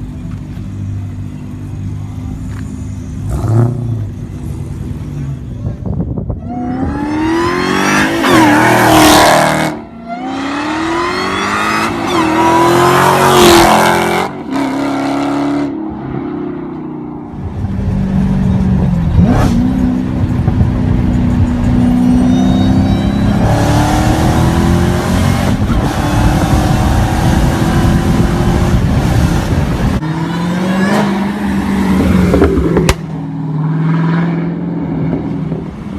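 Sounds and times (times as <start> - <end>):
car engine accelerating hard: 17.6 - 35.8.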